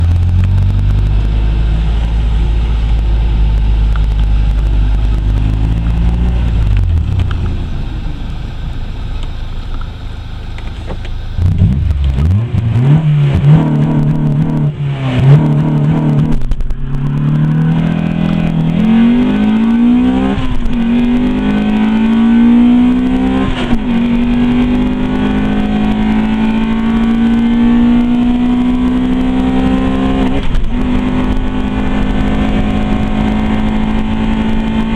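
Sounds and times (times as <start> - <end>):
car engine accelerating: 0.0 - 34.9.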